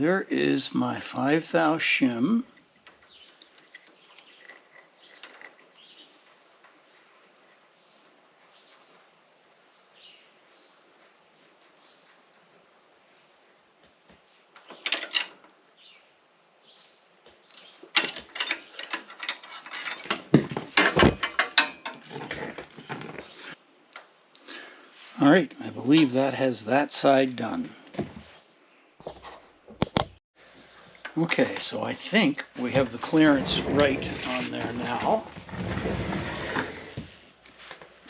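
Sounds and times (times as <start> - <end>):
cricket chirping: 6.6 - 14.8, 15.6 - 17.2
wrenches clicking on metal: 18.0 - 22.4.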